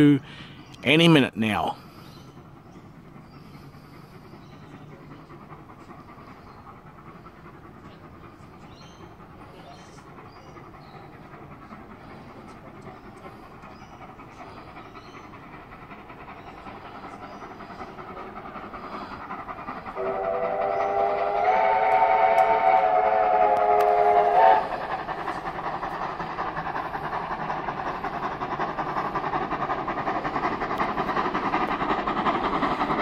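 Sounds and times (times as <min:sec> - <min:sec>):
train rumble: 0:00.0 - 0:33.0
train whistle chord: 0:20.0 - 0:24.7.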